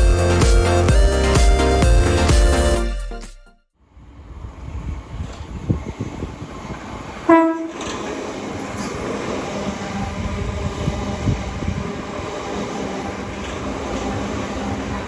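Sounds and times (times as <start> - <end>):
train running on track: 3.9 - 15.0
train horn toot: 7.3 - 8.0.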